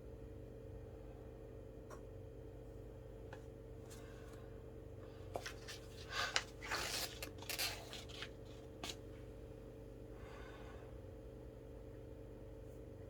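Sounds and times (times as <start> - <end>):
faint steady hum: 0.0 - 13.0
paper rustling: 5.3 - 9.1.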